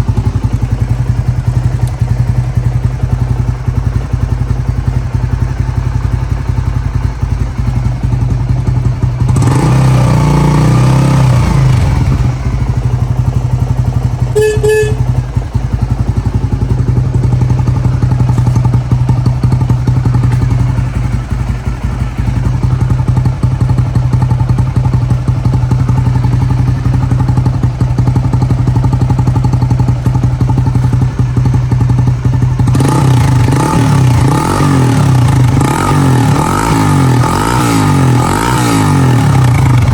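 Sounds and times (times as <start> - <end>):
motorcycle engine idling and revving: 0.0 - 39.9
short beep: 14.4 - 15.2.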